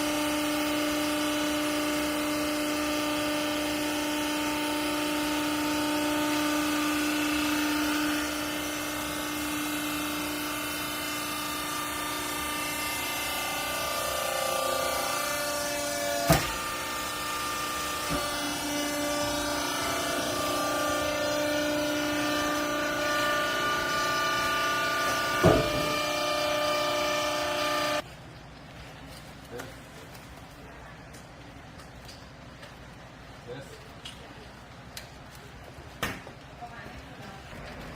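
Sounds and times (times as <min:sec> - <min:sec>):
baling press motor whine: 0:00.0 - 0:28.0.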